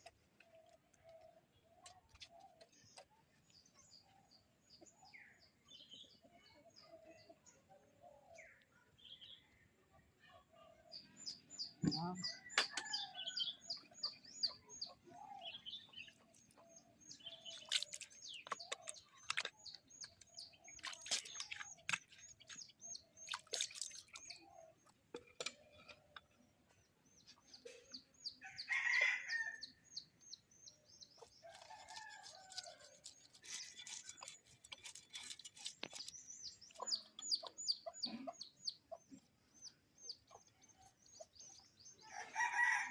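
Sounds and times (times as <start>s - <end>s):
small birds chirping: 10.3s - 42.8s
rooster crowing: 42.1s - 42.9s.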